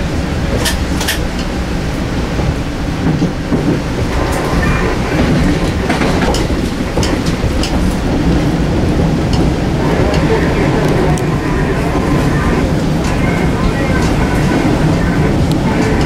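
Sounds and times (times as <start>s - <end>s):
rail joint clicks: 0.0s - 16.0s
rumble of wheels on rail: 0.0s - 16.0s.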